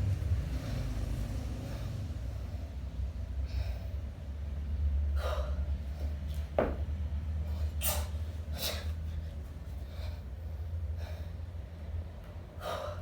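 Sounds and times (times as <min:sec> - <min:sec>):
sharp forceful breaths: 0:12.6 - 0:13.0.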